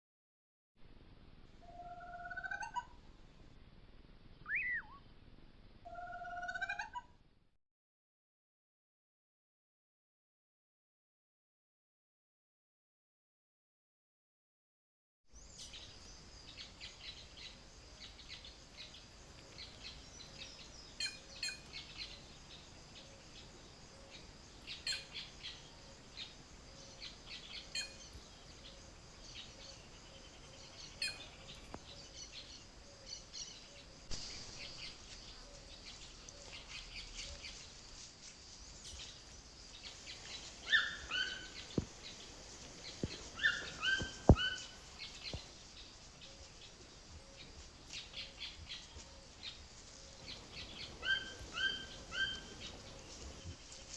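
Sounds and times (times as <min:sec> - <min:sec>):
wild birds calling: 0:04.5 - 0:05.0, 0:15.4 - 0:53.9.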